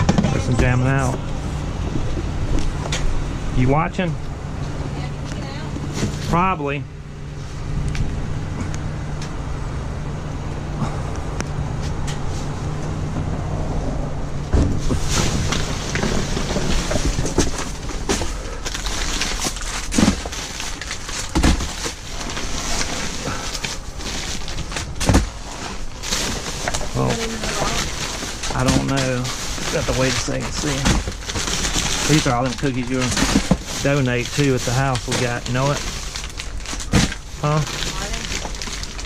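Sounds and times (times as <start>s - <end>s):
rummaging in a dumpster: 0.0s - 3.8s, 4.7s - 6.6s, 14.5s - 39.0s
low engine hum: 0.0s - 21.3s.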